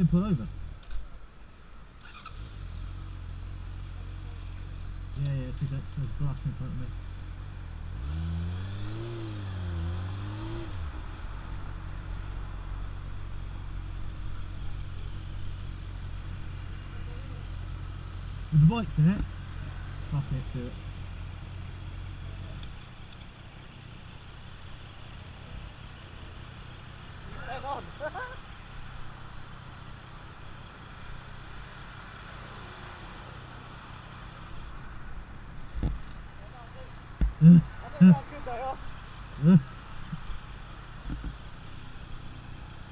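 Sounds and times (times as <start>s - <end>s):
traffic: 0.0s - 42.9s
motorcycle engine revving: 2.0s - 5.2s, 7.0s - 13.3s.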